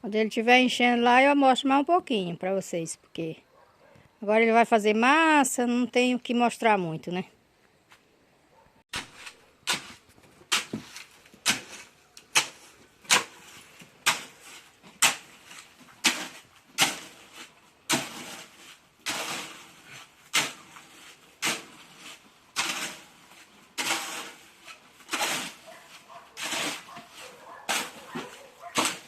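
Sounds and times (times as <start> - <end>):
metal tool scraping concrete mix: 8.9 - 29.0.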